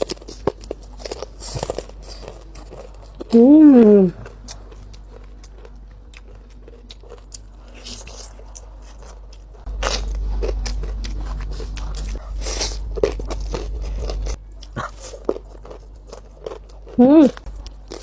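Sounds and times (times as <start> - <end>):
low hum: 0.0 - 18.0
person chewing crunchy food: 0.0 - 18.0.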